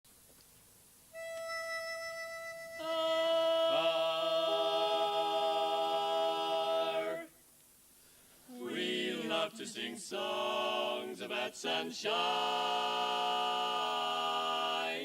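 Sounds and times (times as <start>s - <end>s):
vocal quartet close harmony chord: 2.8s - 7.4s, 8.5s - 15.0s.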